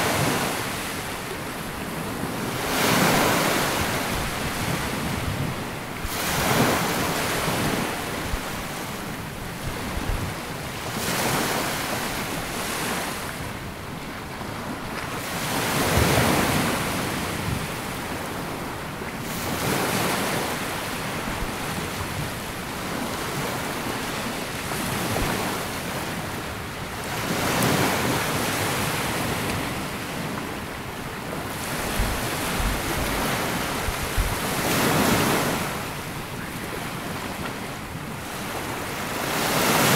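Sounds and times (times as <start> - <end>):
sea waves washing onto beach: 0.0 - 39.9
wind buffeting microphone: 1.8 - 11.4, 26.2 - 38.8.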